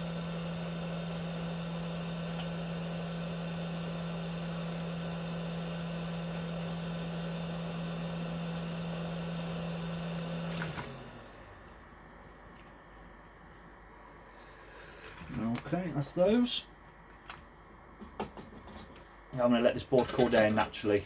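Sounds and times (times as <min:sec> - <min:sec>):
hot air blower humming: 0:00.0 - 0:12.2.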